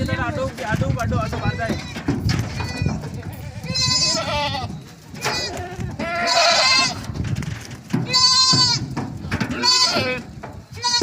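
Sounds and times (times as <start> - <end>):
goats bleating: 1.4 - 7.2, 8.0 - 11.0.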